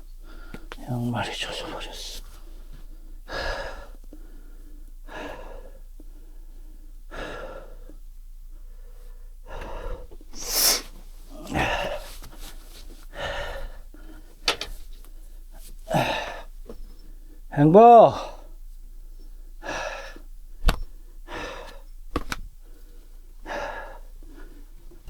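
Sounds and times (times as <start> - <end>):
man breathing hard: 0.0 - 0.8, 2.3 - 25.0.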